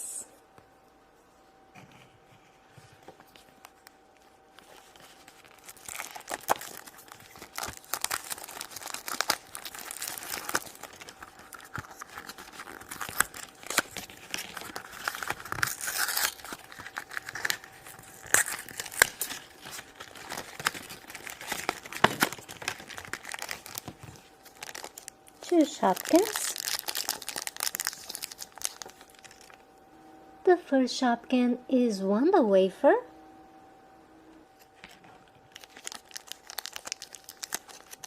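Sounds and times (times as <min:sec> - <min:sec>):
plastic packaging tearing and crinkling: 0:04.5 - 0:29.6, 0:34.7 - 0:38.0.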